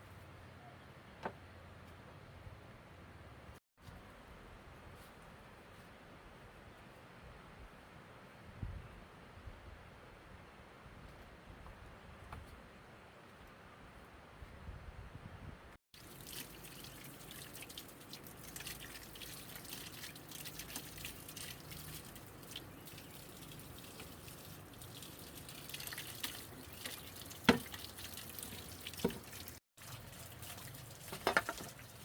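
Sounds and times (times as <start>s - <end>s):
water dripping and trickling: 16.0s - 32.0s.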